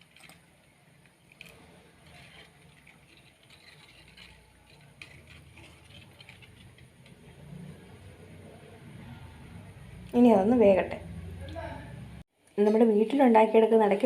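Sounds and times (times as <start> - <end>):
ladle stirring and scraping pot: 0.0 - 8.4.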